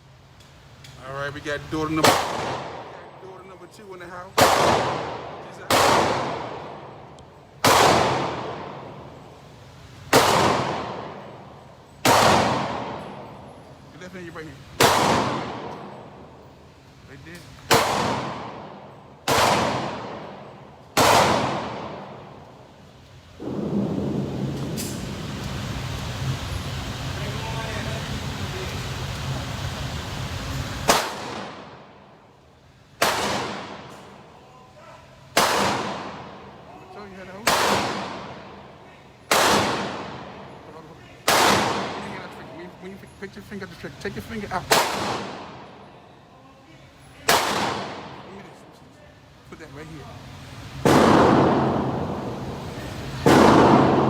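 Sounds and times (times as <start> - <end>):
gunshots with reverberation: 1.9 - 3.2, 4.3 - 9.3, 10.1 - 13.5, 14.8 - 16.4, 17.7 - 22.6, 23.4 - 25.1, 30.8 - 32.1, 33.0 - 34.2, 35.3 - 36.6, 37.4 - 38.7, 39.3 - 40.6, 41.2 - 42.4, 44.6 - 45.8, 47.3 - 48.3, 50.8 - 52.6, 53.2 - 54.0
handgun shots echoing: 7.6 - 8.8, 12.0 - 13.3, 17.7 - 20.4, 21.0 - 22.2, 30.9 - 31.7, 33.0 - 34.2, 35.4 - 36.4, 37.4 - 38.4, 39.3 - 40.4, 41.3 - 42.2, 53.2 - 54.0.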